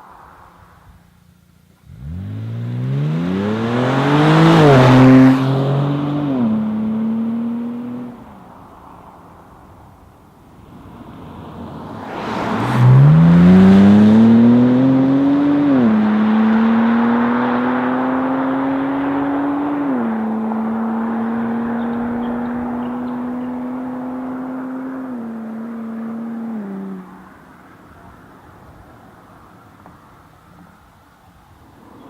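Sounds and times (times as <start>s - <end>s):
car engine accelerating hard: 1.8s - 9.0s, 11.0s - 28.2s.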